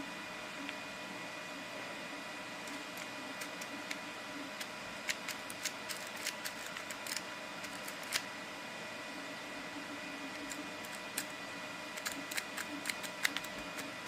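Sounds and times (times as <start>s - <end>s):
small plastic parts clicking: 4.6s - 8.2s, 12.0s - 13.9s.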